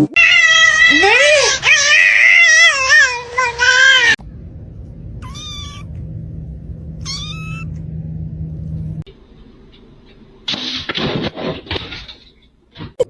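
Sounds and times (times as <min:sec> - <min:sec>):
cat meowing: 0:00.2 - 0:04.2, 0:05.2 - 0:06.0, 0:07.0 - 0:07.8
low steady hum: 0:03.3 - 0:10.5.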